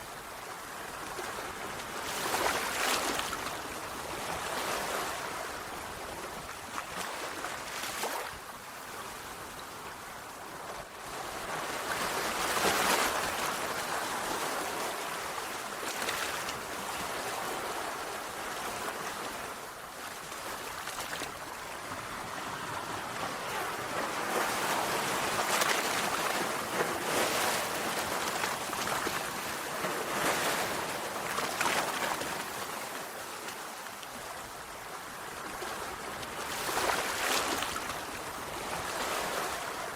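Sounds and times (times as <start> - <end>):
sea waves washing on shore: 0.0 - 39.9.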